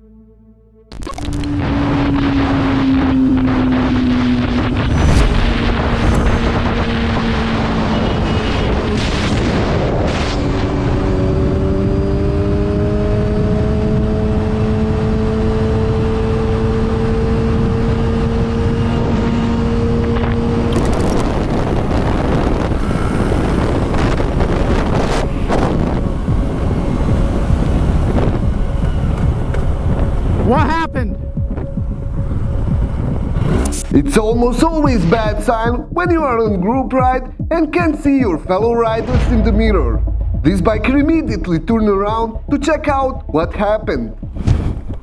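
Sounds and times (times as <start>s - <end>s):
wind rush on microphone: 1.5s - 33.9s, 44.2s - 45.0s.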